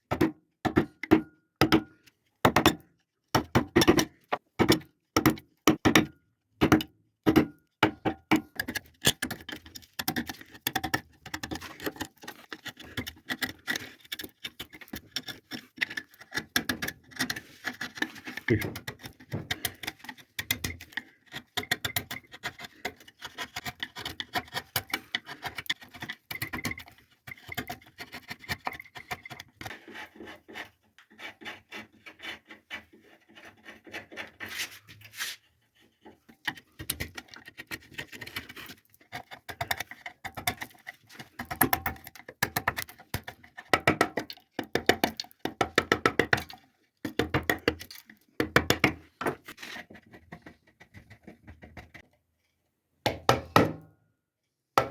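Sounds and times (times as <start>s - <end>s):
carving tool scraping wood: 8.4s - 52.0s.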